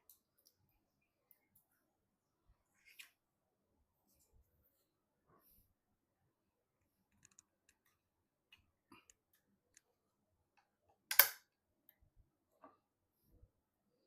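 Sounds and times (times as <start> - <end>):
computer parts taps and clicks: 11.1 - 11.4
sharp loud click: 11.1 - 11.4.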